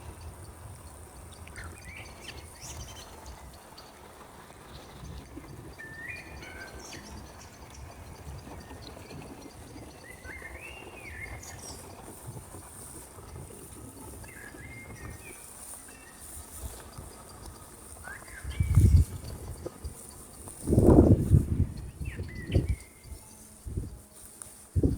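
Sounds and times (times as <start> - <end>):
songbird warbling: 4.6 - 12.2, 14.1 - 23.3
high insect-like hiss: 11.4 - 24.9.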